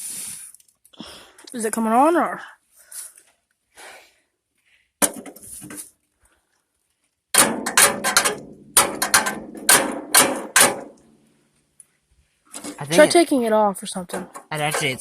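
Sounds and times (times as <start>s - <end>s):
rock striking metal cog: 7.3s - 11.0s.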